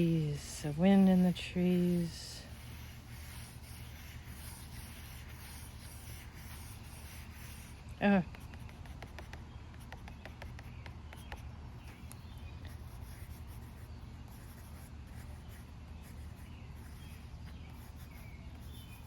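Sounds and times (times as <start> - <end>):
pen scratching on paper: 0.6 - 11.4, 12.7 - 16.2
faint bird chirps: 2.4 - 19.0.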